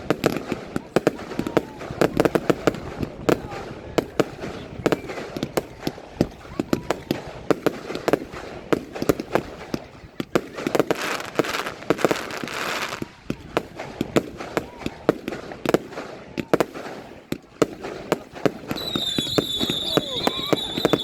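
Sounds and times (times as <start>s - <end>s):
fireworks bangs: 0.0s - 21.0s
fireworks hissing: 10.7s - 13.1s, 17.9s - 21.0s.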